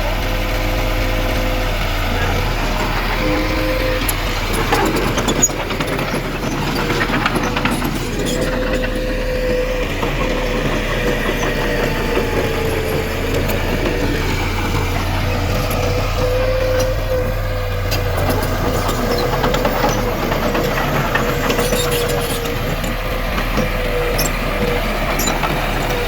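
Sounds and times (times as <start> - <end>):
constant whine: 0.0 - 26.0
heavy diesel engine running: 0.0 - 26.0
light clicks and clanks: 17.8 - 26.0.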